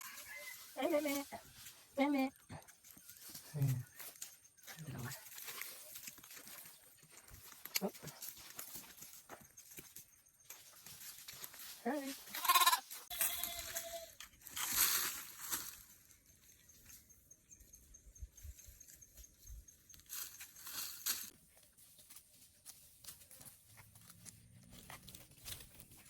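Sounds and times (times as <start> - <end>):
goats chewing foliage: 0.1 - 9.4, 20.3 - 26.0.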